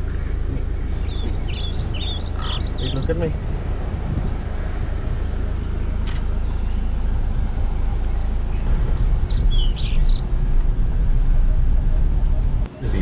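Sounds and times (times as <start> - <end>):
short falling bird calls: 0.0 - 3.6
car engine rumble: 0.0 - 13.0.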